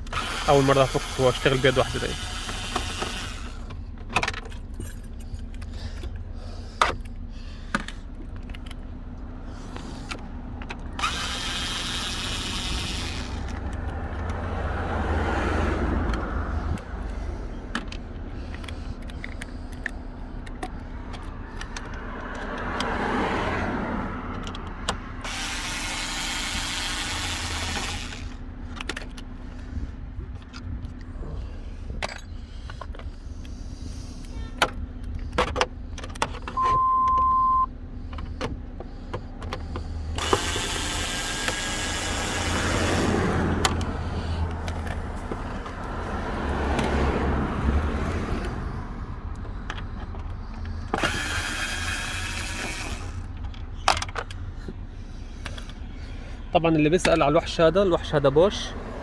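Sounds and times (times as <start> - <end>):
cordless electric screwdriver running: 0.0 - 3.7, 10.9 - 14.4, 25.2 - 28.4, 39.7 - 46.0, 50.9 - 53.3.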